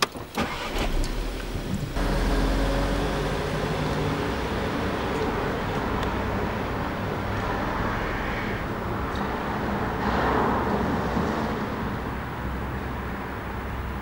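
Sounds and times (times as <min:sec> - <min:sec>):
car engine pulling away: 0:00.0 - 0:07.9.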